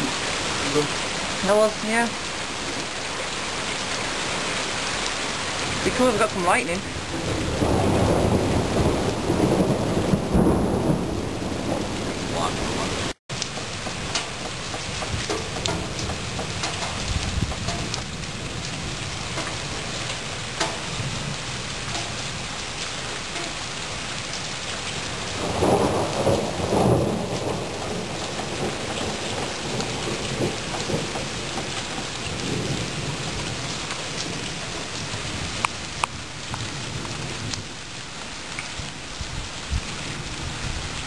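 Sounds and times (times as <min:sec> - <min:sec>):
steady rain: 0:00.0 - 0:41.0
thunder rumble: 0:05.6 - 0:38.0
water drips ticking: 0:13.3 - 0:18.2, 0:21.8 - 0:22.2, 0:23.3 - 0:23.6.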